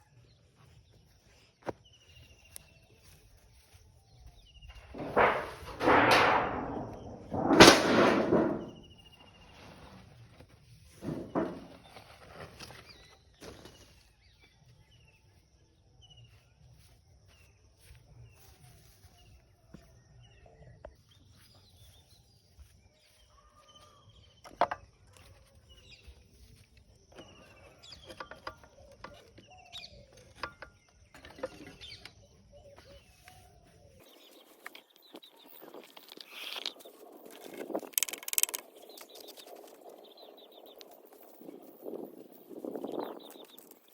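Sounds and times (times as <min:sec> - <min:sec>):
sharp knocks: 0:04.9 - 0:08.9, 0:11.0 - 0:11.7
birds chirping: 0:27.2 - 0:43.9.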